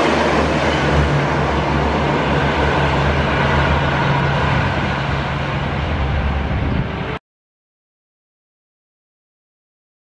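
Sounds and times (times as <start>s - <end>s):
train coaches rumbling on track: 0.0s - 7.2s.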